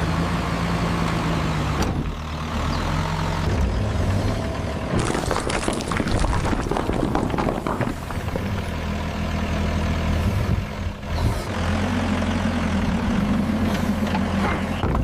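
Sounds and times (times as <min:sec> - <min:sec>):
clattering: 0:05.0 - 0:08.8.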